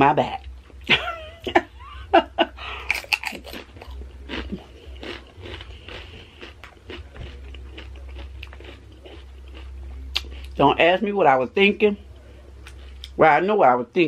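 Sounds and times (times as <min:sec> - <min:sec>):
chewing crunchy chips: 0:02.8 - 0:10.6.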